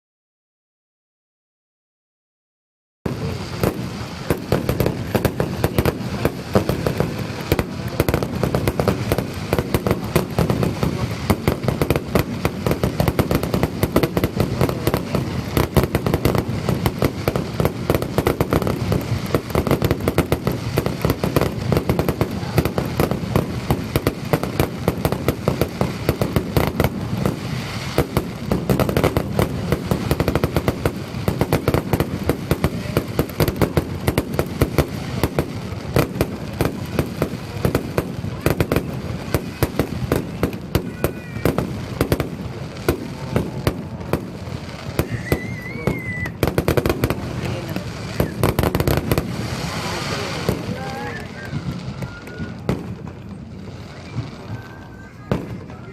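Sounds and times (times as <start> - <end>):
fireworks bangs and crackles: 3.1 - 55.9.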